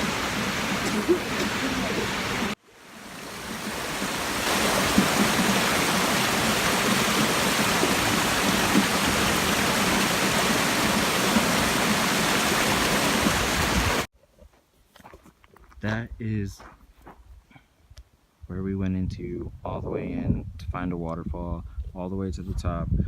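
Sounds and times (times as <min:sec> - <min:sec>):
waterfall rushing: 0:00.0 - 0:14.1.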